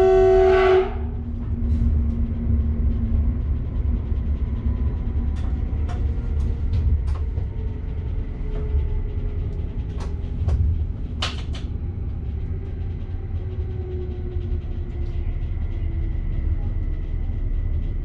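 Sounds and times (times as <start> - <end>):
electric train rumbling: 0.0 - 18.0
sharp clicks and knocks: 9.4 - 11.8.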